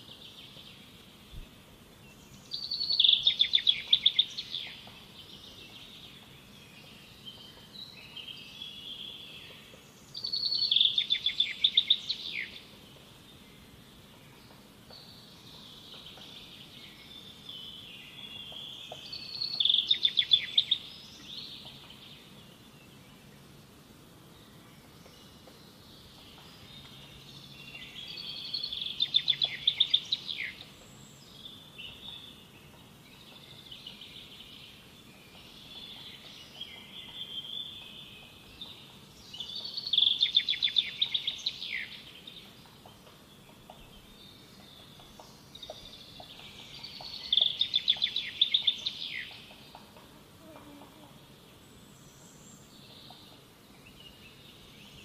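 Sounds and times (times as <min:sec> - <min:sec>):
soft bird chirps: 0:24.4 - 0:55.0.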